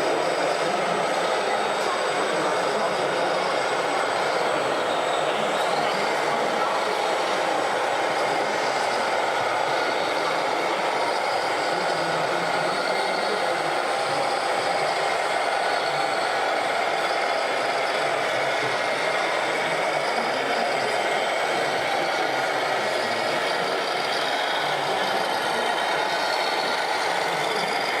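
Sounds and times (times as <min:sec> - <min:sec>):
model truck engine noise: 0:00.0 - 0:28.0.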